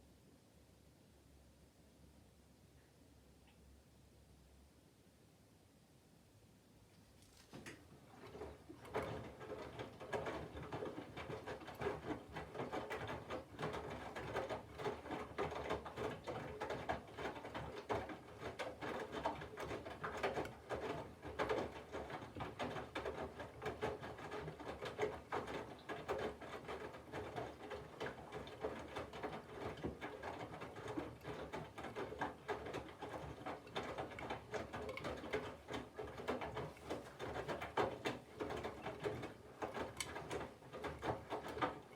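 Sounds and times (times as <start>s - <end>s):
laundry and water sloshing in drum: 7.5s - 41.9s.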